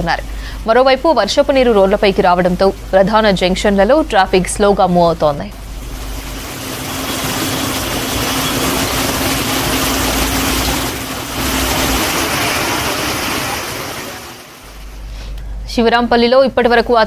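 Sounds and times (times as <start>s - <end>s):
vehicle engine humming: 5.5s - 15.4s
heavy rain on a road: 5.6s - 14.9s.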